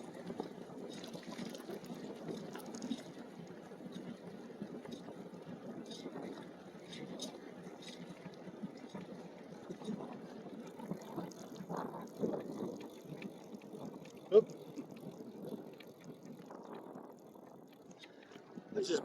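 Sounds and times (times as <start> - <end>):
small clicks and rattles: 5.9 - 18.6.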